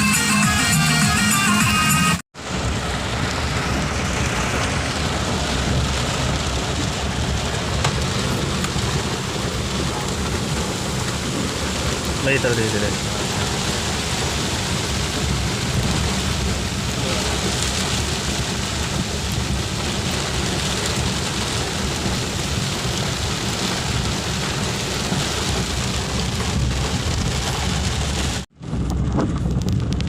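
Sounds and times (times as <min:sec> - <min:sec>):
heavy rain falling: 0:02.4 - 0:30.0
low rumble: 0:26.3 - 0:30.0.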